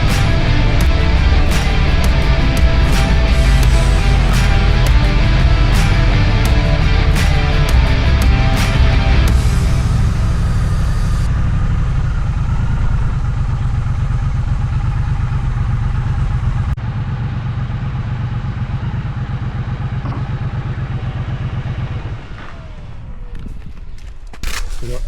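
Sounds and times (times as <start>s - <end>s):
motorcycle engine running: 0.0s - 24.1s.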